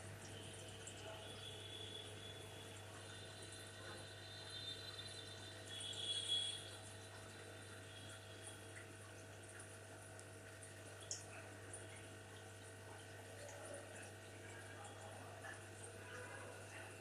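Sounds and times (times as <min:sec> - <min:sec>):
aquarium water trickling: 0:00.0 - 0:17.0
low pump hum: 0:00.0 - 0:17.0.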